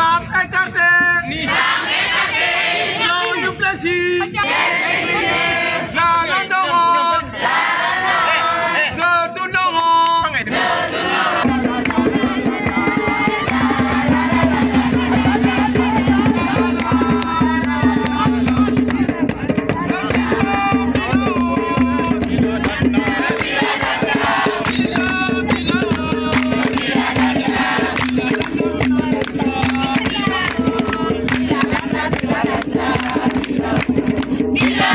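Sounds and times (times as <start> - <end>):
group singing and shouting: 0.0 - 34.9
fast drumming: 11.4 - 34.9.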